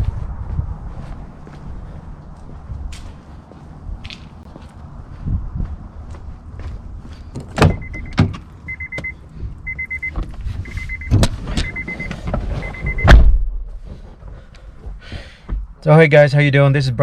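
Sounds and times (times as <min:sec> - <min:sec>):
car warning chime beeping: 0:07.6 - 0:13.2
heavy thump: 0:11.1 - 0:15.7.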